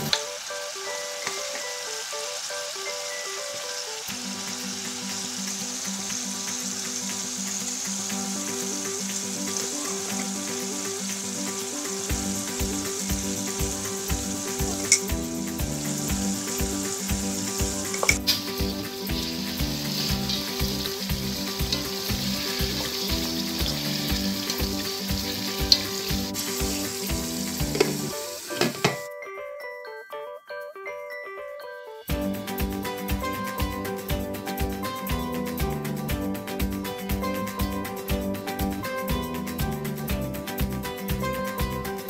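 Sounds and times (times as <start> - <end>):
food sizzling in oil: 0.0 - 29.1
background music with steady beat: 0.0 - 42.0.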